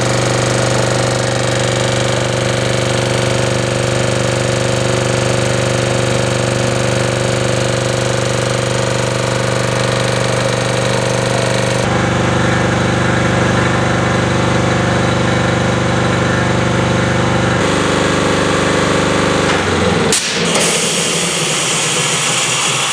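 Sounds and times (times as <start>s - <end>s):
air compressor knocking: 0.0s - 12.6s, 17.6s - 22.9s.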